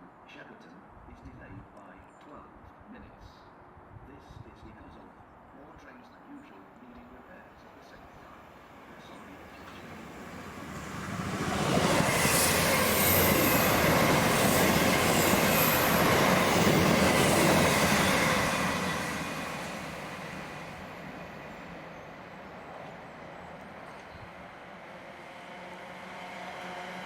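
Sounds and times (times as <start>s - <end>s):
passenger train passing: 7.1s - 27.0s
wheels squealing on rails: 9.0s - 20.7s.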